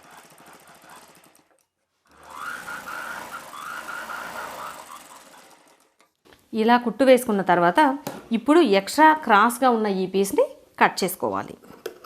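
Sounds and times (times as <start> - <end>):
sewing machine stitching: 0.0 - 6.1.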